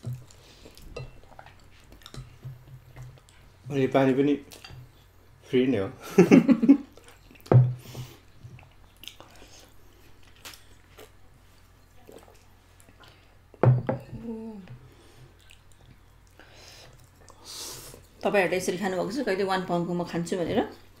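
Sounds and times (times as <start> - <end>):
people chewing spaghetti: 0.0 - 3.6, 6.8 - 13.6, 14.8 - 18.2.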